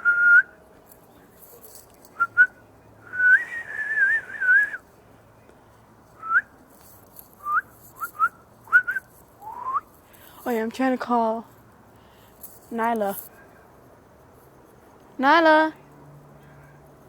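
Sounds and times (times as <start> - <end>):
person whistling: 3.1 - 4.8, 7.4 - 9.9.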